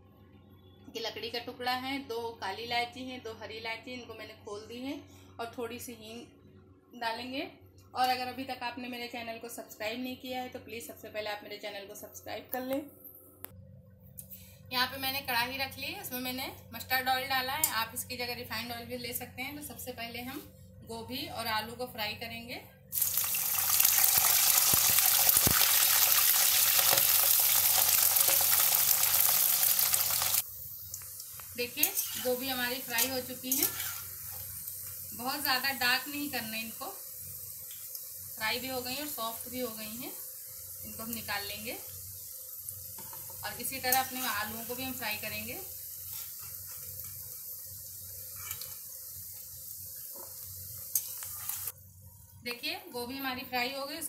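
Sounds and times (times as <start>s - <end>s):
food sizzling in oil: 22.9s - 51.8s.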